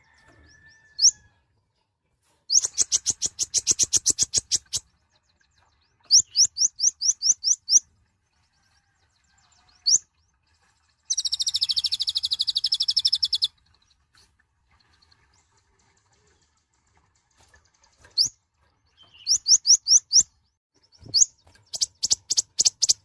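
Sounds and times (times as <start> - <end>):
sunbird singing high chirps: 2.5 - 7.8, 11.1 - 13.5, 18.9 - 20.3, 20.9 - 23.0.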